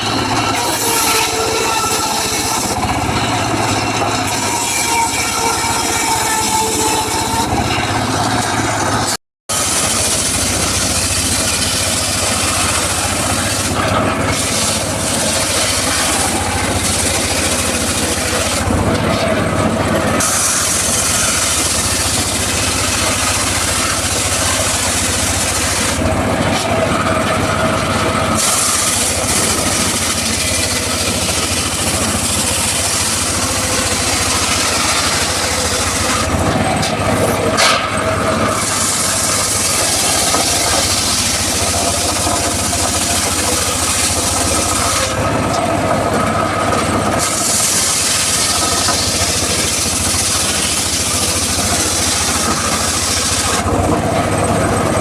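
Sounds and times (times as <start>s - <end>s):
circular saw cutting wood: 0.0s - 55.0s.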